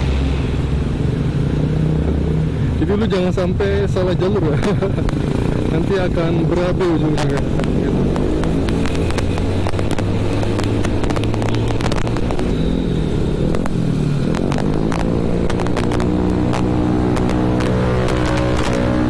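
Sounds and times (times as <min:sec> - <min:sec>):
motorcycle engine running: 0:04.5 - 0:19.0
short crackles: 0:07.0 - 0:19.0.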